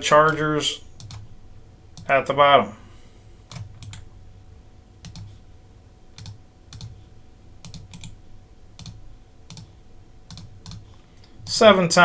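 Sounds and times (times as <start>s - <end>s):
faint low hum: 0.0s - 12.0s
computer keyboard keystrokes: 0.2s - 1.3s, 3.5s - 4.1s, 5.0s - 5.4s, 6.2s - 7.0s, 7.6s - 8.2s, 8.8s - 9.7s, 10.3s - 11.6s.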